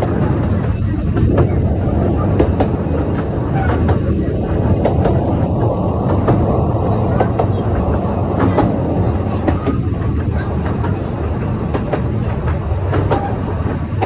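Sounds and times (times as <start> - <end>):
train rumbling: 0.0 - 14.0
wheels clattering over rail joints: 0.0 - 14.0.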